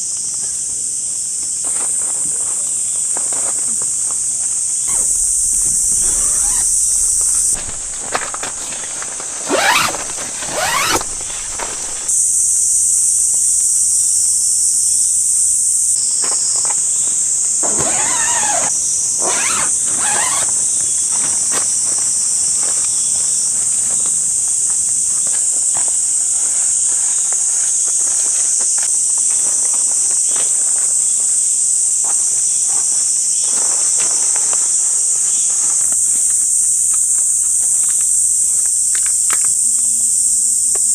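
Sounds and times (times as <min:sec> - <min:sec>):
insects droning: 0:00.0 - 0:40.9
sweeping and rustling: 0:04.8 - 0:12.2.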